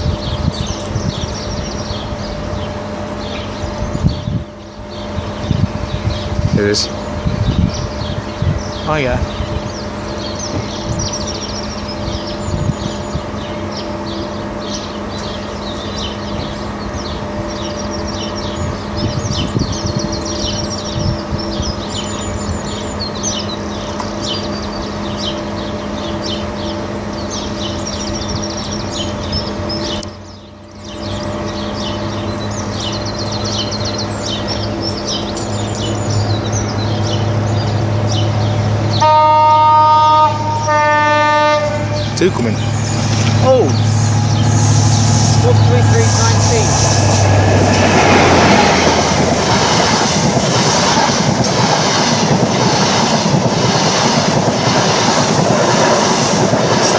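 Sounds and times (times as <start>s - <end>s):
birds singing: 0.0s - 56.9s
train rumbling: 0.0s - 56.9s
train horn: 38.9s - 42.1s
steady low hum: 40.0s - 56.8s.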